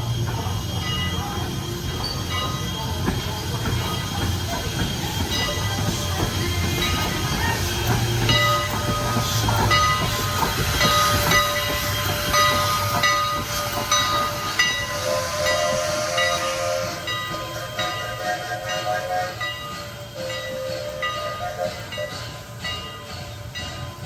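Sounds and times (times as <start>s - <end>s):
train hiss: 0.0s - 24.0s
train rumbling on track: 0.0s - 24.0s
wheels squealing: 0.0s - 24.0s.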